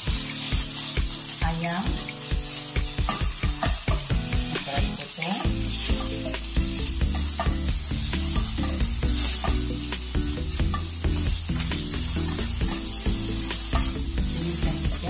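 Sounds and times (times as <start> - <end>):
background music with bass line: 0.0 - 15.0
food sizzling in a frying pan: 0.0 - 15.0
spatula stirring in a pan: 0.0 - 15.0.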